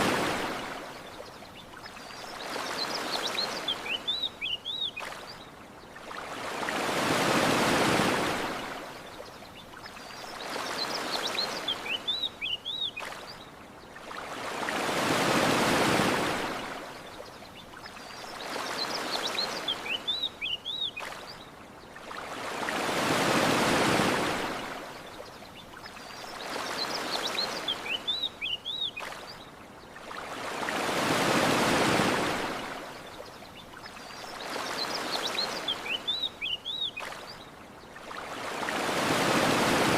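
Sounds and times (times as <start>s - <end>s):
ocean waves washing on beach: 0.0s - 39.9s.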